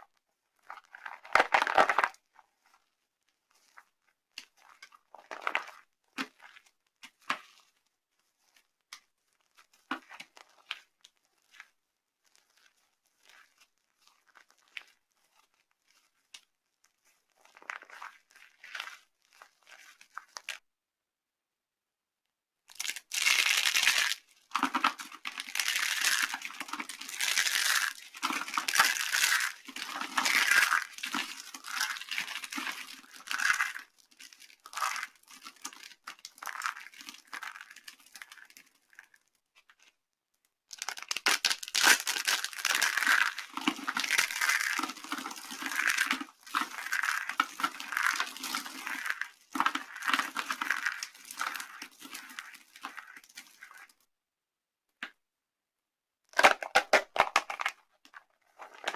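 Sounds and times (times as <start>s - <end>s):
soap crushing and crunching: 0.6s - 2.2s, 4.7s - 6.6s, 17.4s - 20.6s, 22.7s - 39.2s, 40.8s - 54.0s, 56.3s - 58.9s.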